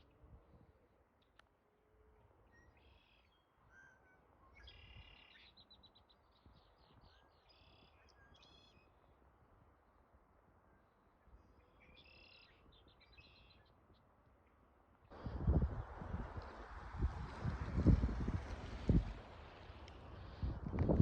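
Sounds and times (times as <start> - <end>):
faint songbird chirping: 2.4 - 9.2, 10.6 - 14.7.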